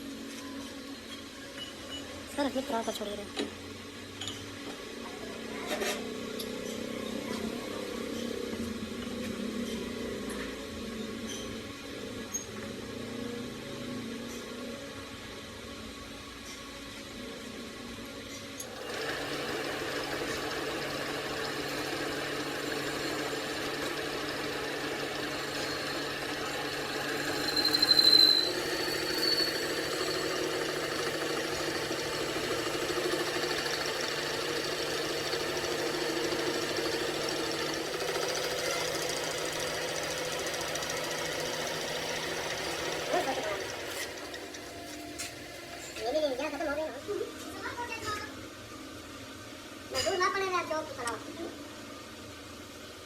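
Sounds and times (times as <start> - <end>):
machine humming: 17.1 - 47.4
high squeal: 27.1 - 30.6.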